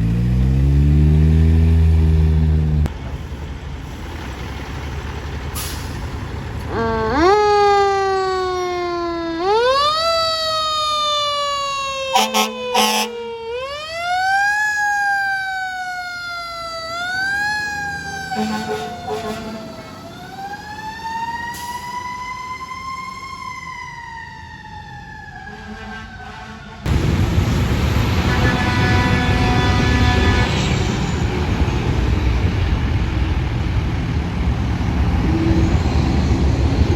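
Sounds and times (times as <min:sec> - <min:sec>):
fire engine siren wailing: 0:06.5 - 0:34.0
short horn blasts: 0:12.2 - 0:13.1, 0:18.4 - 0:19.7, 0:25.5 - 0:26.9, 0:28.2 - 0:31.4.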